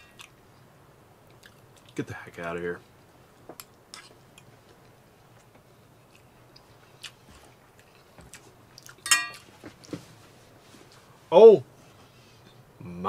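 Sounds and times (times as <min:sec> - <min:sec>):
man chewing: 0:00.1 - 0:02.0, 0:03.6 - 0:10.0.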